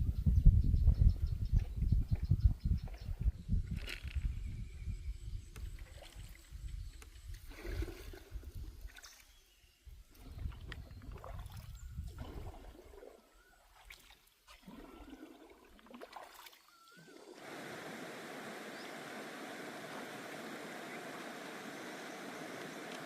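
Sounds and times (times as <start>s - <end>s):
water splashing and trickling: 10.1s - 17.6s
steady rushing hiss: 17.4s - 23.0s.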